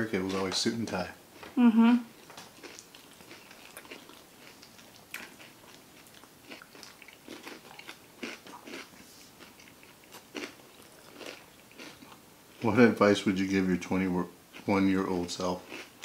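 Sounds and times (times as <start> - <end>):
crunching and chewing snacks: 2.2 - 12.8, 14.6 - 16.0.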